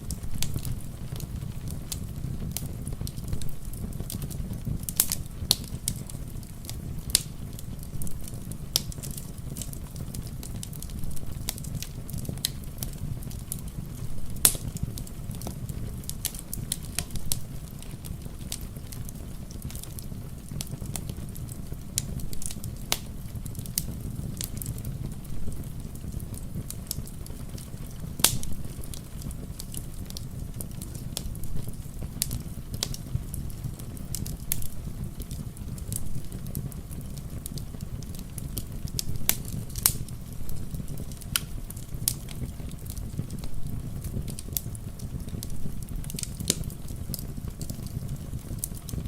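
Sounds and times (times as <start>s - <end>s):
wood fire crackling and popping: 0.0s - 49.0s.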